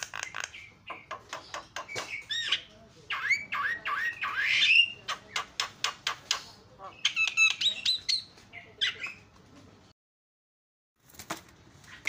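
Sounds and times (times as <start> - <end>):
bird singing clicks and whistles: 0.0 - 2.6, 4.2 - 8.2.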